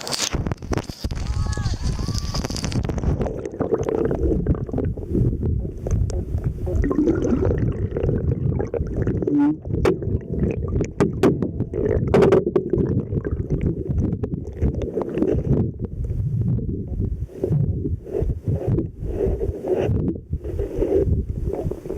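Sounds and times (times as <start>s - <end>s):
muffled underwater rushing water: 0.3s - 21.9s.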